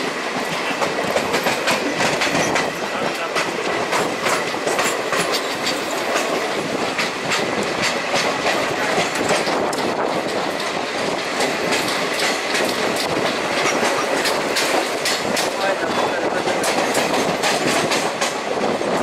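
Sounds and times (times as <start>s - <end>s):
wheels clicking over rail joints: 0.0s - 18.8s
train rumbling on track: 0.0s - 19.0s.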